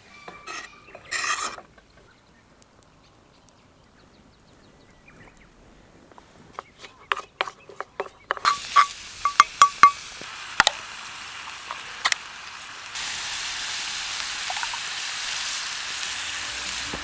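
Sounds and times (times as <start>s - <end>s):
food sizzling in a pan: 8.4s - 17.0s.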